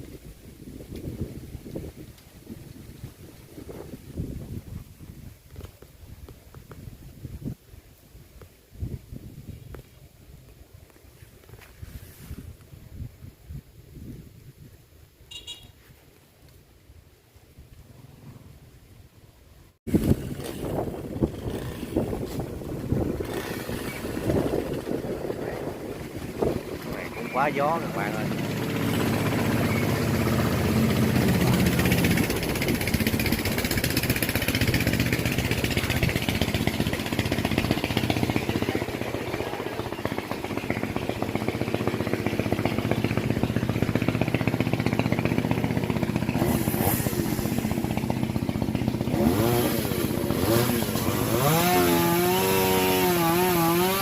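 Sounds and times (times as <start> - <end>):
chainsaw running and revving: 19.9 - 54.0.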